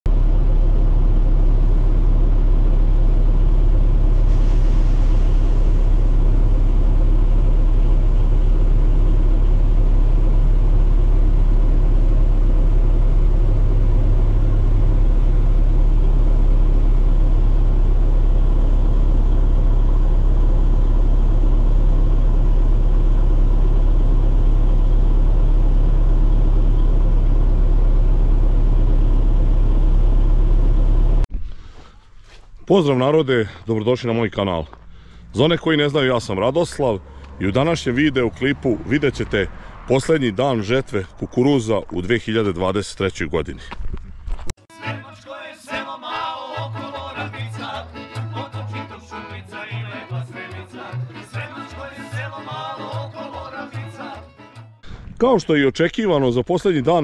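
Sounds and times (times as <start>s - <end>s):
heavy machine engine rumbling: 0.1s - 44.5s.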